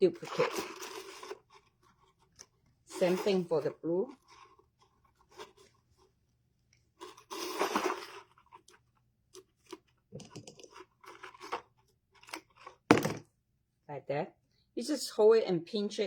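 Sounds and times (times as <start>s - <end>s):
small ticks and scrapes: 0.1s - 12.9s.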